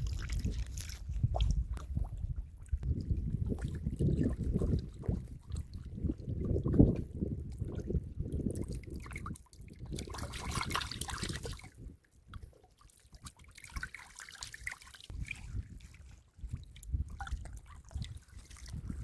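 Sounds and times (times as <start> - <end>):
water splashing: 0.0 - 6.8
muddy water sloshing: 0.0 - 19.0.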